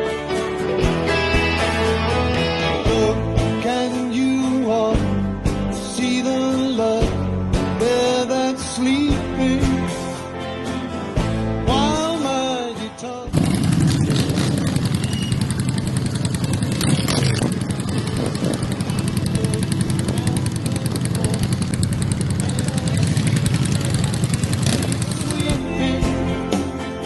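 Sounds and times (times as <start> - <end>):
music: 0.0 - 16.4, 17.4 - 27.0
motorcycle engine running: 13.3 - 26.6.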